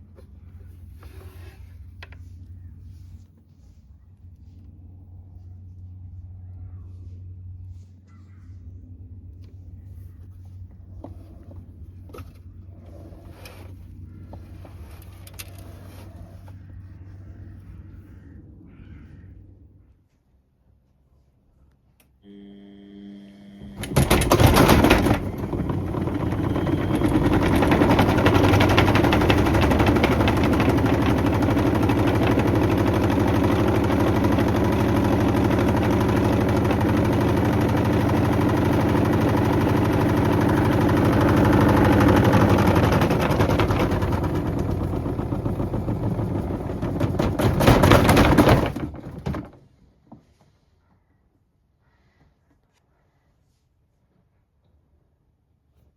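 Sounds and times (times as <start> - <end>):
faint hum: 0.0 - 47.0
washing machine rattling: 23.8 - 49.6.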